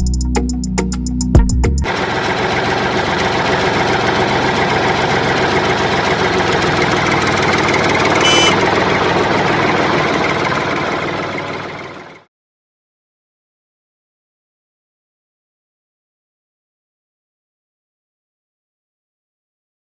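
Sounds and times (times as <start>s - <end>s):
background music: 0.0s - 1.9s.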